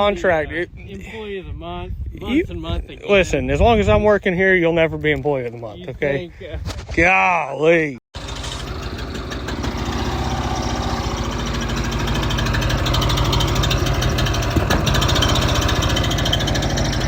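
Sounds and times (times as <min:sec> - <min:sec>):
small engine running: 0:08.2 - 0:17.0.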